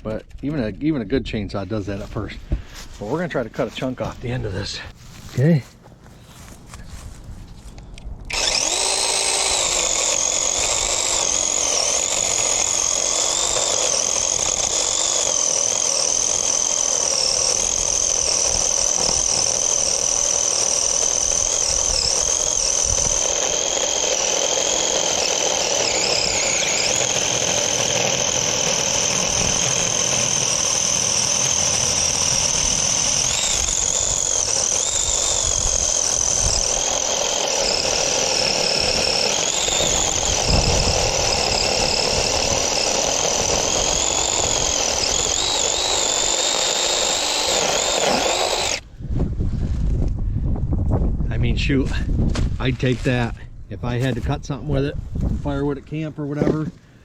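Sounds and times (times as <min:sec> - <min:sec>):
chainsaw cutting log: 0:08.3 - 0:48.9.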